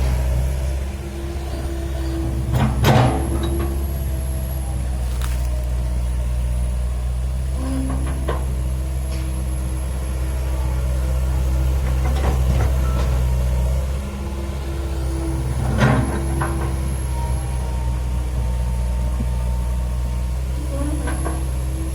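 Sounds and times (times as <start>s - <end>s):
heavy diesel machinery drone: 0.0s - 21.9s.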